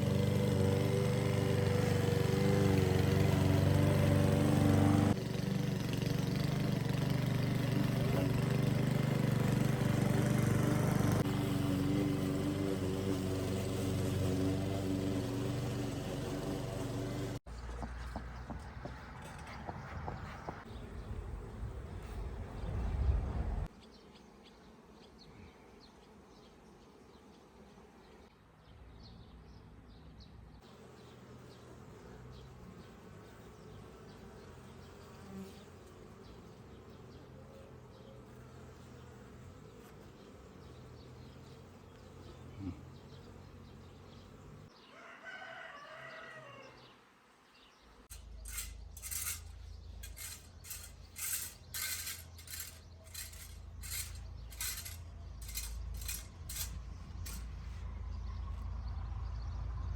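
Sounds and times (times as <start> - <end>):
faint insect buzzing: 23.6 - 57.8
rooster crowing: 44.9 - 47.0
sharp regular scraping strokes: 48.0 - 57.8.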